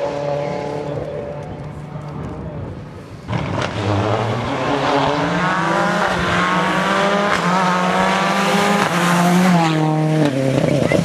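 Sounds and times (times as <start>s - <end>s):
rally car engine accelerating: 3.3s - 11.0s.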